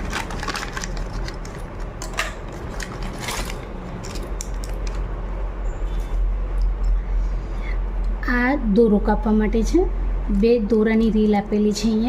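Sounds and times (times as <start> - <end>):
small parts clicking and rattling: 0.0 - 5.1.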